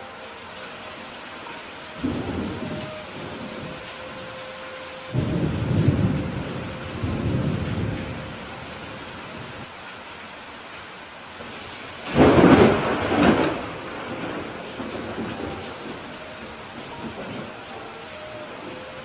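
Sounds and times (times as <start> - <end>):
steady rain: 0.0 - 19.0
thunder rumbling: 1.9 - 4.5, 5.1 - 9.7, 12.0 - 19.0
sharp thunderclap: 12.1 - 16.0.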